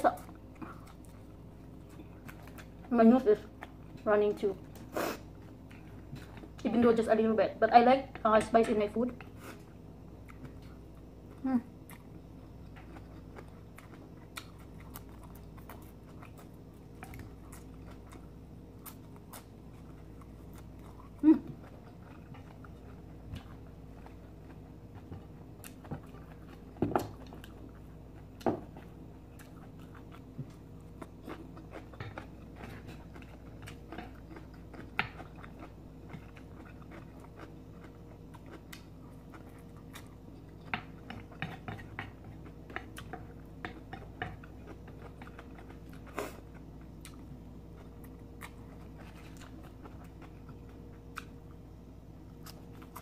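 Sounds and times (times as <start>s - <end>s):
faint steady hum: 0.0s - 53.0s
person chewing noodles: 0.3s - 2.8s, 9.2s - 53.0s.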